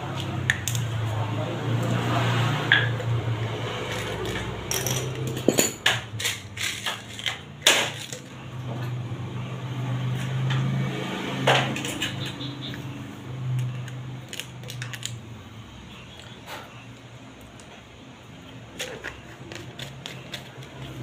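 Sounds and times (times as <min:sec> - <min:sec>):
metal tools clinking: 0:03.9 - 0:08.3.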